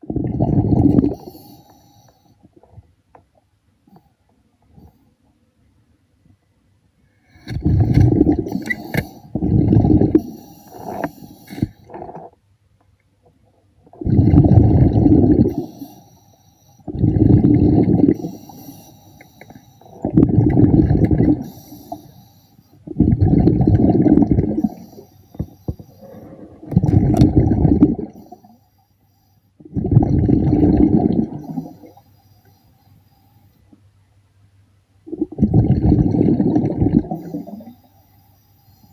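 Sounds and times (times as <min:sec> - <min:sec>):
breath bubbling underwater: 0:00.0 - 0:01.3, 0:07.4 - 0:12.3, 0:13.9 - 0:16.0, 0:16.9 - 0:18.7, 0:19.9 - 0:22.0, 0:22.8 - 0:28.6, 0:29.6 - 0:32.0, 0:35.1 - 0:37.8.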